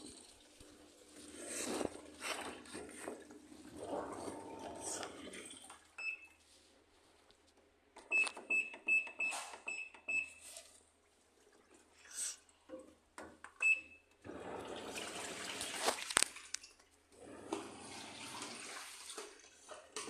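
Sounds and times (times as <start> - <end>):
rustling watery noise: 14.8 - 17.0.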